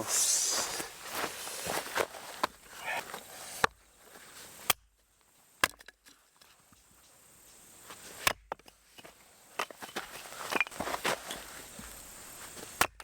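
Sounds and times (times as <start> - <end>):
axe chopping firewood: 5.6 - 6.0, 8.2 - 8.8, 12.7 - 13.0.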